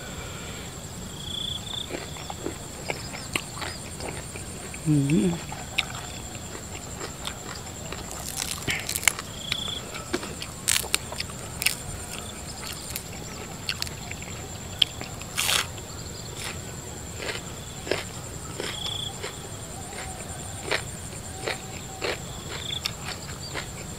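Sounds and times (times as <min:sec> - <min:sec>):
man chewing and lip smacking: 0:01.9 - 0:15.8.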